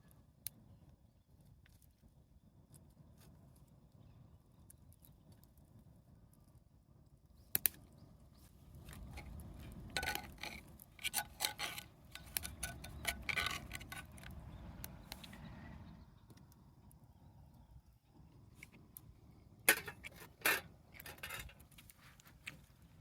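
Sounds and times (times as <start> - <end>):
small hard objects clicking: 8.8 - 15.3
light clicking and rattling: 8.8 - 15.4.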